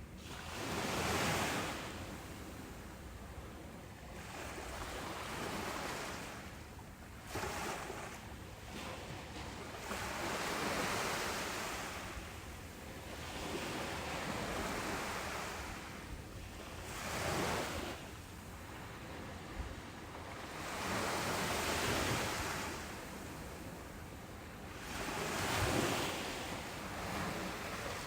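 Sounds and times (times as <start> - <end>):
ocean waves breaking: 24.7 - 28.0.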